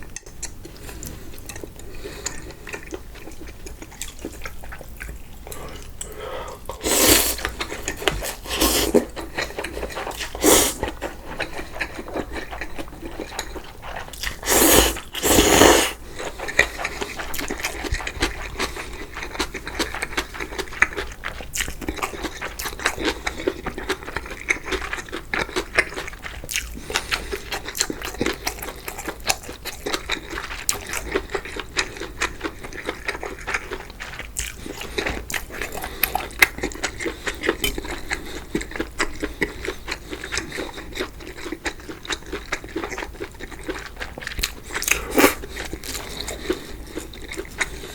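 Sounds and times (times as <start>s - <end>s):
wet chewing with small clicks: 0.0s - 15.6s, 16.3s - 47.9s
loud noodle slurps: 6.7s - 9.1s, 9.8s - 11.0s, 14.2s - 16.0s, 45.0s - 45.4s.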